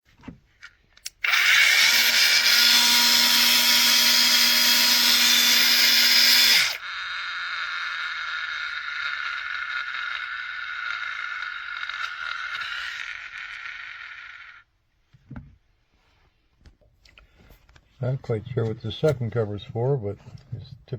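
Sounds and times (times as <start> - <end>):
angle grinder running: 1.1 - 14.7.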